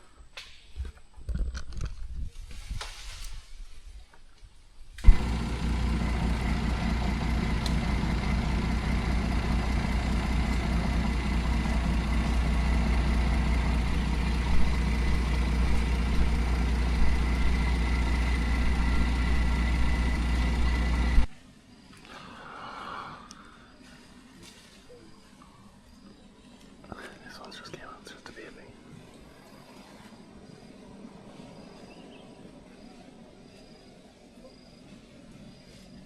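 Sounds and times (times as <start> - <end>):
vehicle engine humming: 5.0 - 21.3.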